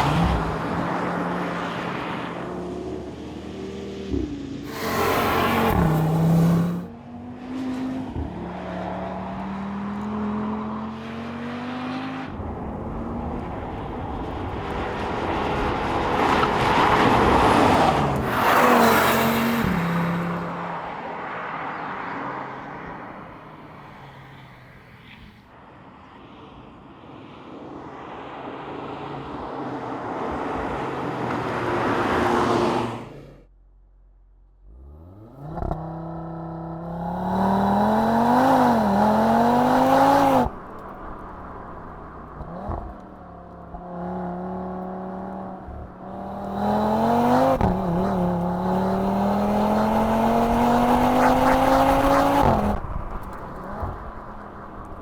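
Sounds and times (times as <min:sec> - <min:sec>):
car engine revving and idling: 0:34.5 - 0:55.0.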